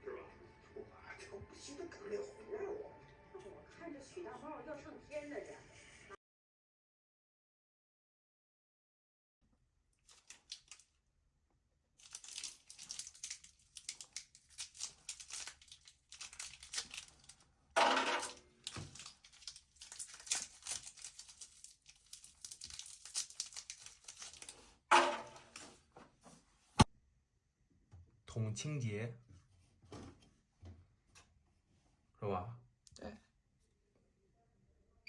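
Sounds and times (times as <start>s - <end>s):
packaging crinkling and tearing: 10.0s - 11.0s, 12.0s - 17.5s, 18.2s - 24.8s.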